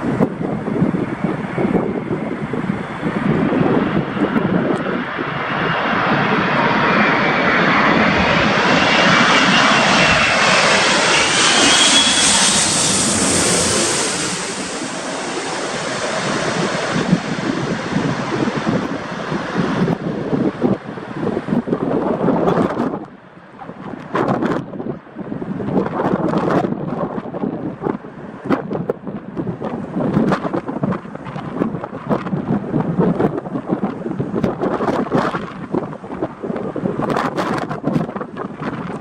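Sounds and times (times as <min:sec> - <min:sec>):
jet airliner passing: 0:00.0 - 0:39.0
jet engine whine: 0:00.0 - 0:39.0.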